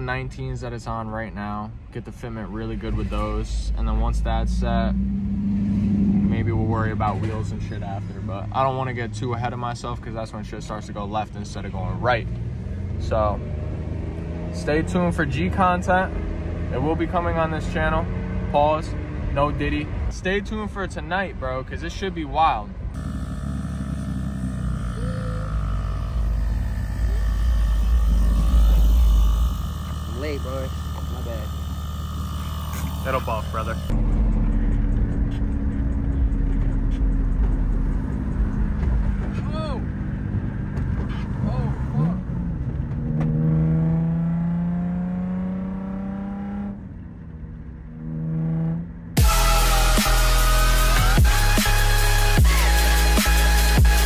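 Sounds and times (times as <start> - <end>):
car engine and road rumble: 0.0 - 54.0
electronic music with heavy bass: 23.0 - 39.0, 49.2 - 54.0.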